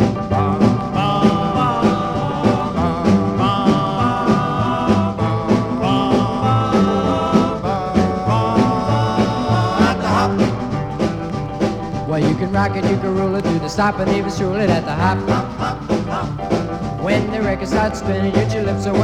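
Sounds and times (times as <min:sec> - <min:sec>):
rock and roll band playing: 0:00.0 - 0:19.0.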